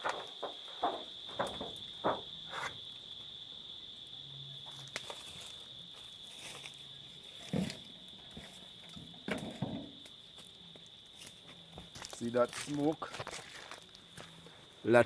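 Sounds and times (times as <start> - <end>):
short knocks and crackles: 0.0 - 2.7
insect chirring: 0.0 - 15.0.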